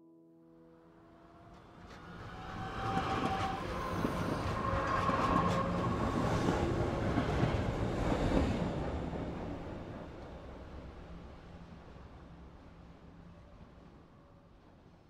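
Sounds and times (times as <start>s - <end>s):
train wheels rumbling on rail: 1.6s - 11.4s.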